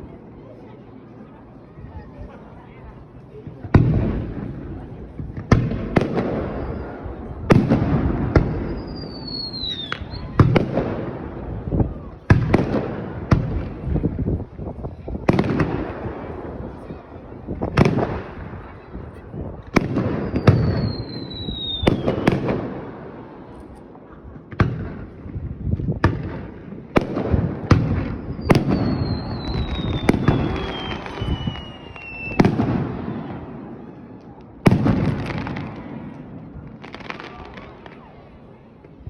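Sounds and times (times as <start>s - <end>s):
fireworks bangs: 3.4s - 39.0s
fireworks whistles: 6.0s - 7.2s, 8.3s - 10.7s, 19.8s - 22.4s, 28.2s - 33.3s.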